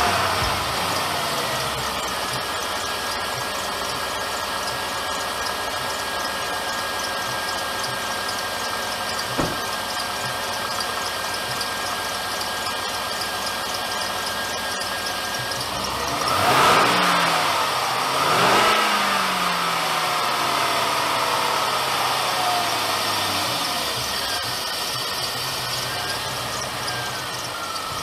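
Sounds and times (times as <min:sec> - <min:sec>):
drive belt squeaking: 0:00.0 - 0:18.8, 0:21.6 - 0:28.0
car engine idling: 0:00.0 - 0:28.0
brief thump: 0:09.3 - 0:09.8.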